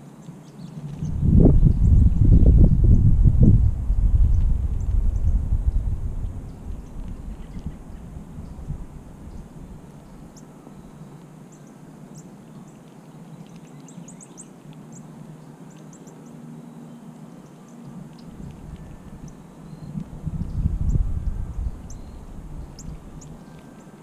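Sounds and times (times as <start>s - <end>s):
small birds chirping: 0.0s - 24.0s
low rumble on microphone: 0.8s - 11.0s, 18.0s - 24.0s.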